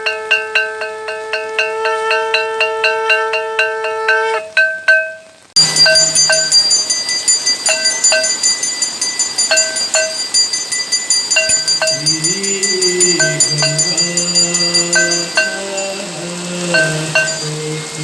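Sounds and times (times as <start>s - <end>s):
low held note: 0.0s - 4.6s
bells ringing rapidly: 0.0s - 18.0s.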